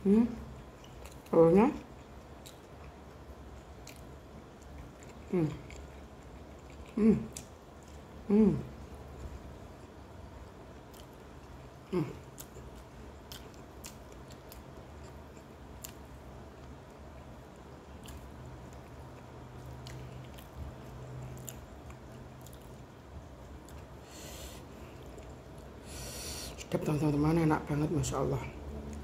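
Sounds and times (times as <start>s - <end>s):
person chewing: 0.5s - 1.3s, 1.9s - 26.3s
person humming mm: 8.3s - 8.7s, 11.9s - 12.2s.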